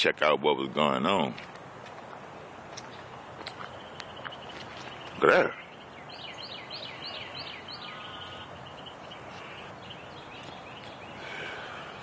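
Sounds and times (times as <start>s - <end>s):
steady background hiss: 0.0s - 12.0s
bird chirping: 2.4s - 12.0s.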